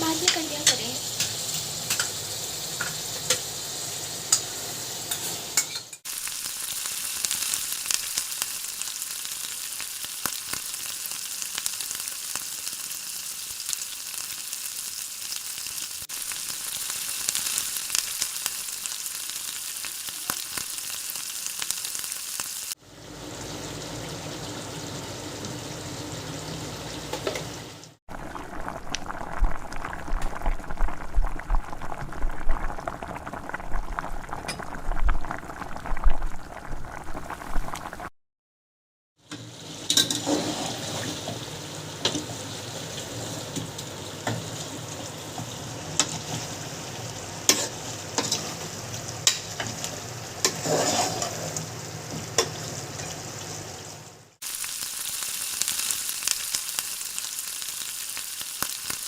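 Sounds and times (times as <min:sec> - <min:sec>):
stew sizzling in a pot: 0:00.0 - 0:38.1, 0:39.2 - 0:59.0
stew bubbling: 0:06.1 - 0:22.7, 0:28.1 - 0:38.1, 0:54.4 - 0:59.0.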